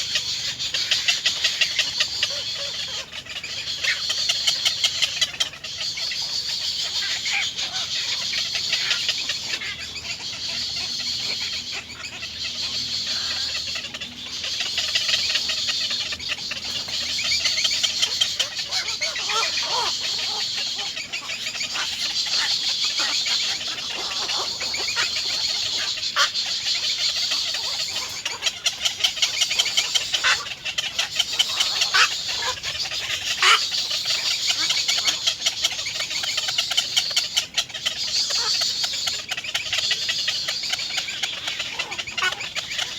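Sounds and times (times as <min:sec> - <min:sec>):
nestling birds begging chirps: 0:00.0 - 0:42.9.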